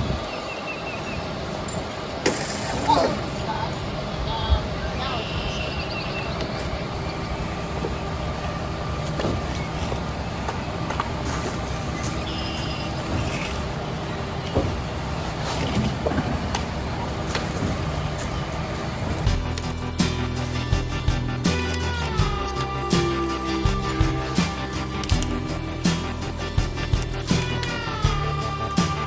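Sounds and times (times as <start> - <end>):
vehicle engine running: 0.0 - 29.0
knocks and clatter: 1.6 - 3.4, 7.5 - 21.2.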